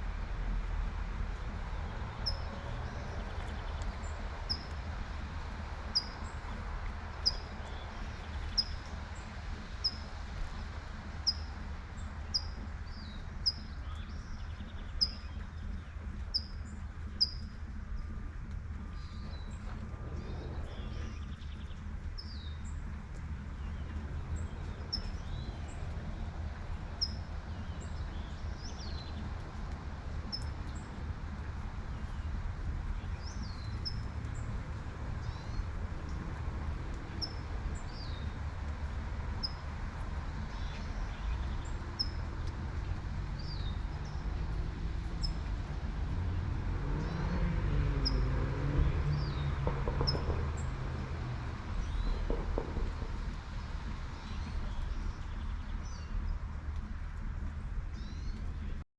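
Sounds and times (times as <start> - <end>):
light rain: 0.0 - 58.8
low traffic hum: 0.0 - 58.8
bird chirping: 11.3 - 18.1
car passing: 17.7 - 57.7.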